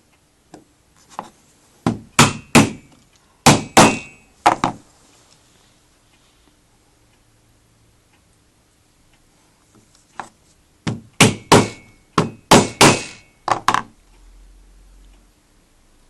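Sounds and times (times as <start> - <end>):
hammer knocking: 1.8 - 2.9, 3.5 - 4.8, 10.9 - 13.9.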